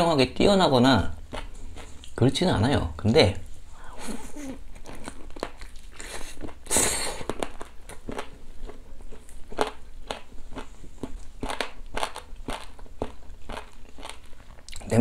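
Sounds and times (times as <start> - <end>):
close-up chewing of meat: 1.2 - 2.2, 4.6 - 14.9.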